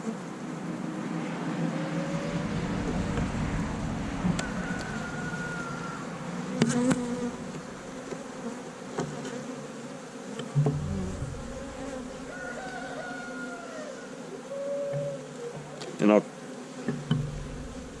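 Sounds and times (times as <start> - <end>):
honey bees buzzing: 0.0 - 18.0
sharp knocks on hive: 6.6 - 9.3, 10.4 - 12.5, 16.8 - 18.0.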